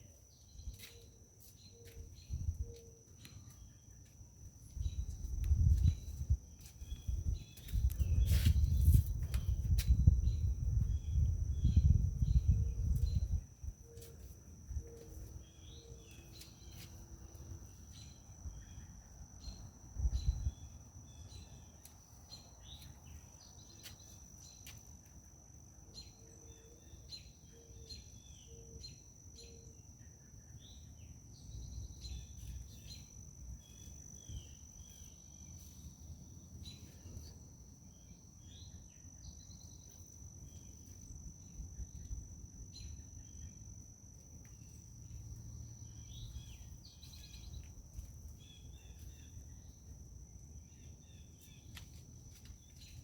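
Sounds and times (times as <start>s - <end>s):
bird chirps: 0.0s - 4.0s, 4.7s - 17.0s
wind rumble on microphone: 2.2s - 2.8s, 4.7s - 13.9s, 19.9s - 20.7s.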